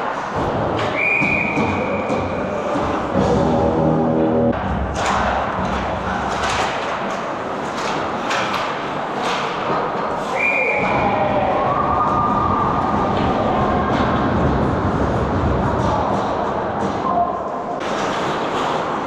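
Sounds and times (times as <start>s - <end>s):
hockey sticks and puck clacking: 0.0s - 3.4s, 4.6s - 19.0s
arena noise: 0.0s - 19.0s
referee whistle: 1.0s - 2.0s.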